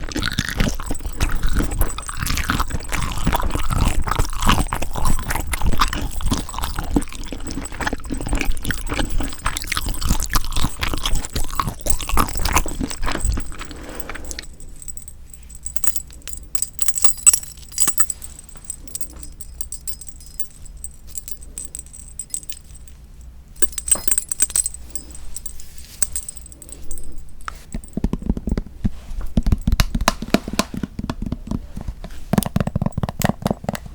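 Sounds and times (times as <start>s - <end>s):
wet chewing and clicking: 0.0s - 16.8s.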